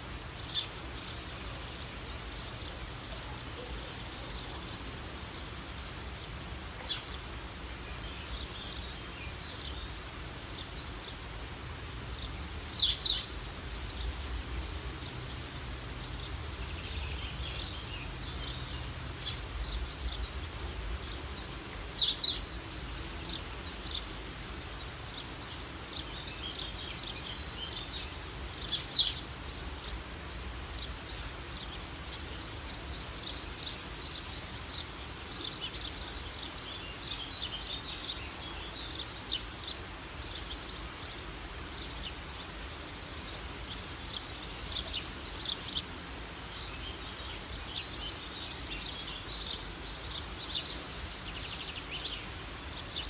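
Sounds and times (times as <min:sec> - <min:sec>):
small birds chirping: 0:00.0 - 0:53.0
steady background hiss: 0:00.0 - 0:53.0.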